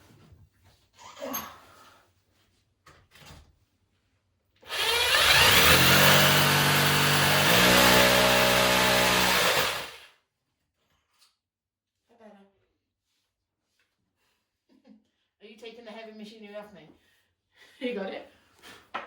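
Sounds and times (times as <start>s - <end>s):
power drill boring into wall: 4.6s - 10.1s.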